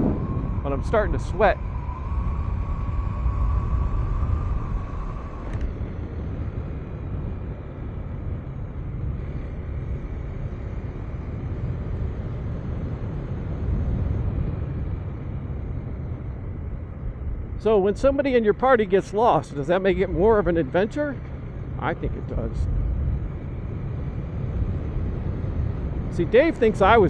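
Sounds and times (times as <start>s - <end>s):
thin steady tone: 0.0s - 7.7s
wind rush on microphone: 0.0s - 27.0s
click: 5.4s - 5.7s.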